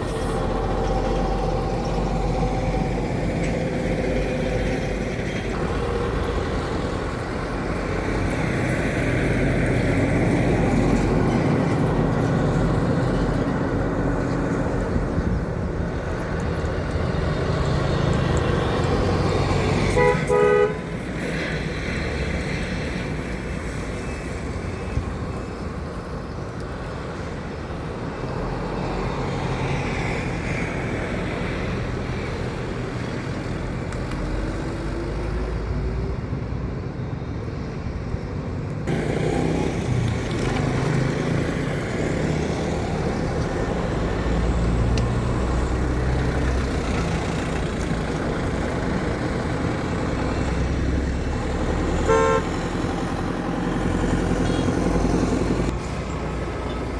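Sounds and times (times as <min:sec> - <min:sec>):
heavy truck engines passing: 0:00.0 - 0:56.9
tyre and road noise: 0:00.0 - 0:56.9
horn toot: 0:19.9 - 0:20.9, 0:52.0 - 0:52.6.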